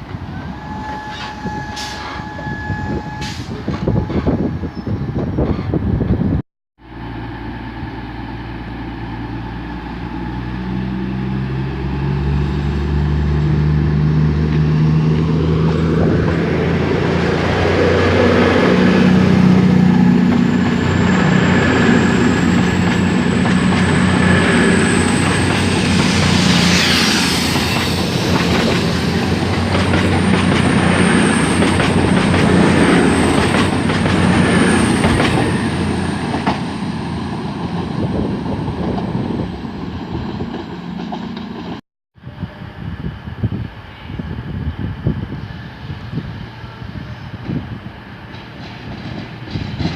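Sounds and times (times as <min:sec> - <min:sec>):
train engine: 0:00.0 - 0:49.9
brief squeal: 0:00.5 - 0:05.8, 0:26.4 - 0:28.0.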